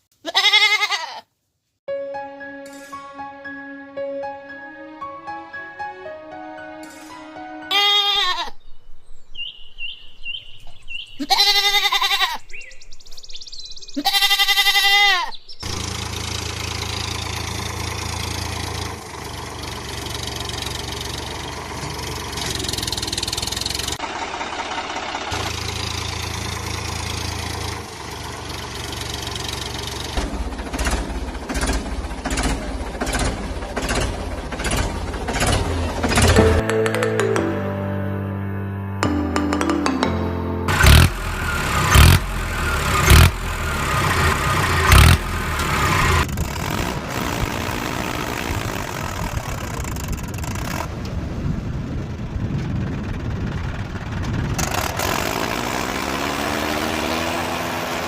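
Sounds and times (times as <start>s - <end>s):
cartoon goat bleats: 0.2s - 1.3s, 7.7s - 8.6s, 11.2s - 12.4s, 14.0s - 15.3s
vehicle engine running: 15.6s - 36.6s, 40.2s - 58.0s.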